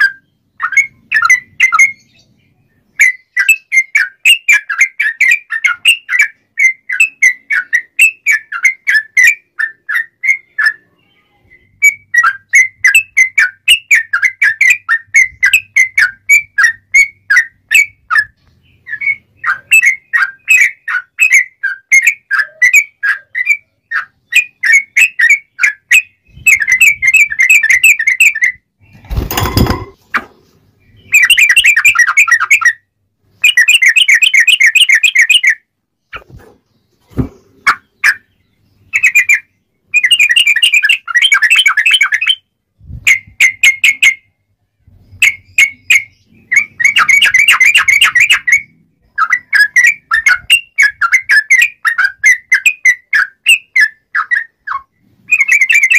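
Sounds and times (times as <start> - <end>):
bird singing sharp clear notes: 10.3 - 12.0.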